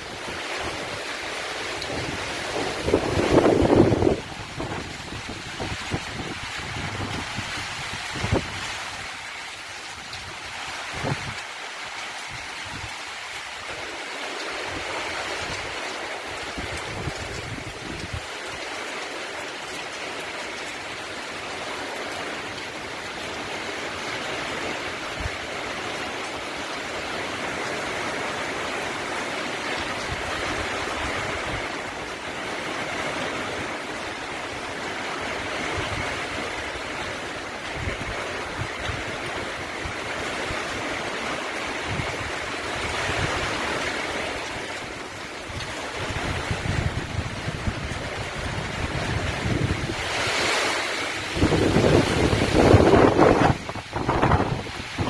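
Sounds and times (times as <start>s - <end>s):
heavy rain and wind rushing: 0.0s - 55.0s
wind buffeting microphone: 1.8s - 8.7s, 45.5s - 55.0s.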